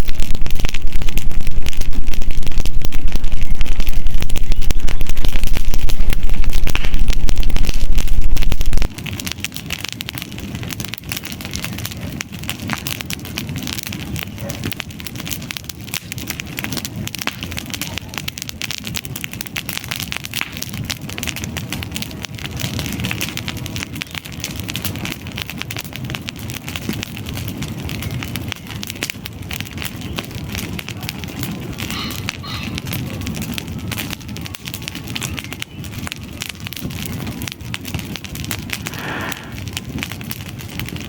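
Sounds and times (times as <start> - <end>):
loud low rumble: 0.0 - 9.0
campfire crackling: 0.0 - 41.0.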